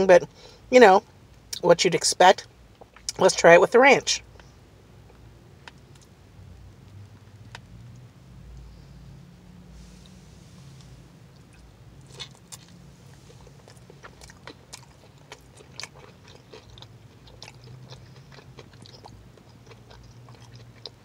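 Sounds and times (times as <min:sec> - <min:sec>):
low steady hum: 0:00.0 - 0:21.0
biting and chewing: 0:11.4 - 0:21.0.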